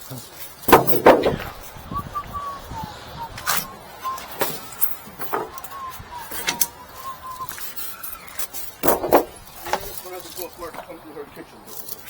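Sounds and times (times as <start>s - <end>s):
faint wavering high tone: 1.3s - 8.8s.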